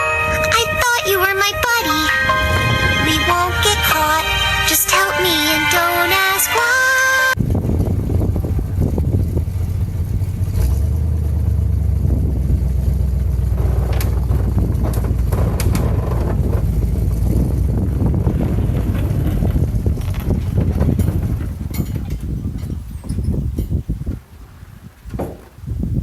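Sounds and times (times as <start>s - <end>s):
vehicle engine rumbling: 0.0s - 6.4s, 7.3s - 23.9s
short metal clanks: 20.9s - 23.8s.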